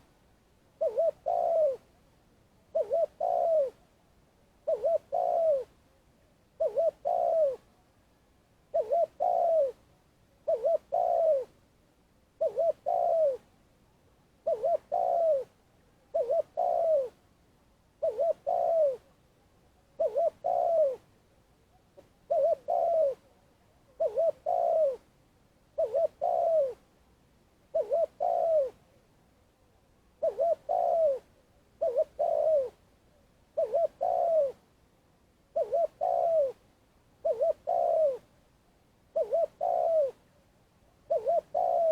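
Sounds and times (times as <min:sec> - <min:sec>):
dove cooing: 0:00.8 - 0:02.0, 0:02.7 - 0:03.9, 0:04.6 - 0:05.8, 0:06.6 - 0:07.7, 0:08.7 - 0:09.8, 0:10.4 - 0:11.6, 0:12.4 - 0:13.6, 0:14.4 - 0:17.2, 0:18.0 - 0:19.2, 0:20.0 - 0:21.1, 0:21.7 - 0:25.1, 0:25.8 - 0:26.8, 0:27.7 - 0:28.9, 0:30.2 - 0:32.8, 0:33.5 - 0:34.6, 0:35.5 - 0:36.6, 0:37.2 - 0:38.3, 0:39.1 - 0:40.2, 0:41.1 - 0:41.9.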